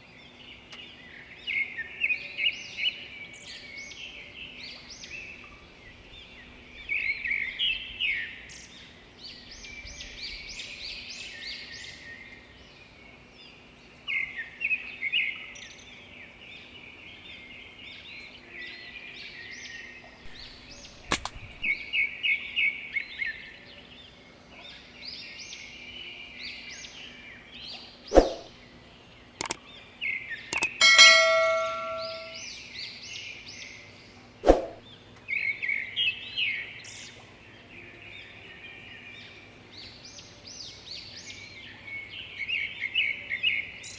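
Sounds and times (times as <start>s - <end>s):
sharp snaps: 20.2s - 21.8s, 29.4s - 29.6s, 30.5s - 30.8s
small birds chirping: 20.2s - 21.8s, 27.8s - 30.8s.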